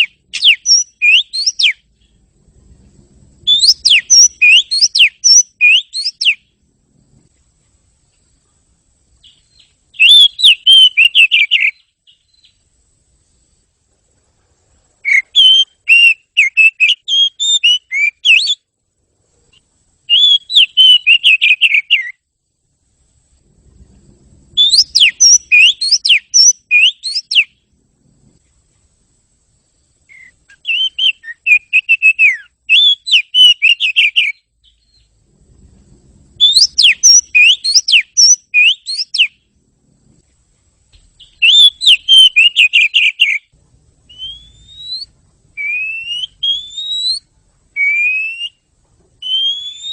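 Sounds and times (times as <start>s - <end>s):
bird singing whistled phrases: 0.0s - 1.8s, 3.4s - 6.5s, 9.2s - 12.6s, 15.0s - 18.6s, 20.1s - 22.2s, 24.6s - 27.6s, 30.1s - 35.1s, 36.4s - 39.4s, 41.2s - 43.5s, 44.1s - 49.9s.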